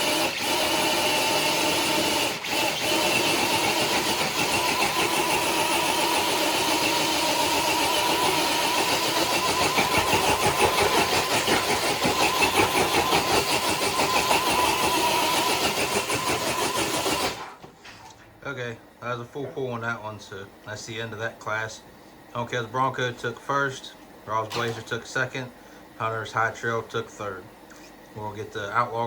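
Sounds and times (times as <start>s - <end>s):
electric motor whining: 0.0s - 17.6s.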